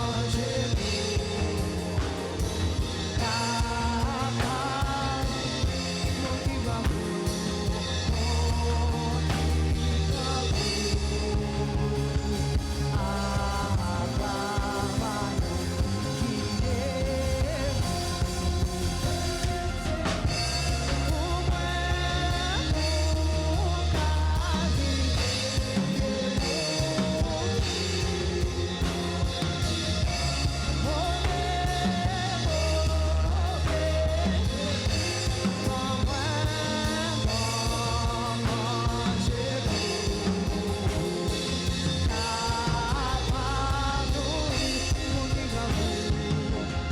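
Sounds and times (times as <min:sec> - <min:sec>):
bass line: 0:00.0 - 0:46.9
drum kit: 0:00.0 - 0:46.9
person singing: 0:00.0 - 0:46.9.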